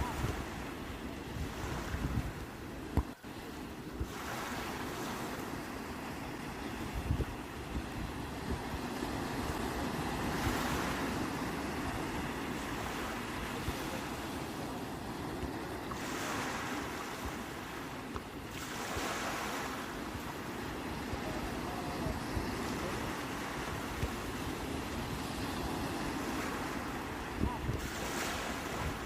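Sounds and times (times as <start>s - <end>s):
wind rumble on microphone: 0.0s - 17.8s, 18.5s - 29.0s
sea waves washing ashore: 0.0s - 29.0s.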